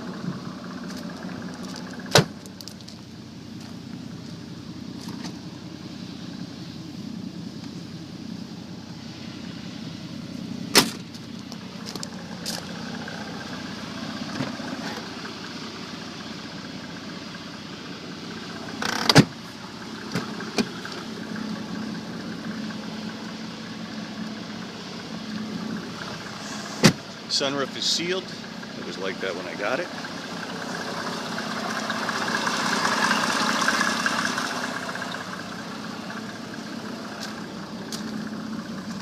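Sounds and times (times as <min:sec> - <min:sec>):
diesel engine idling: 0:00.0 - 0:39.0.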